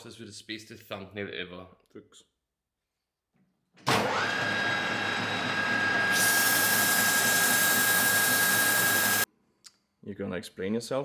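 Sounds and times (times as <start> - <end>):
lathe motor whining: 3.9 - 9.3
bright hiss: 6.1 - 9.3.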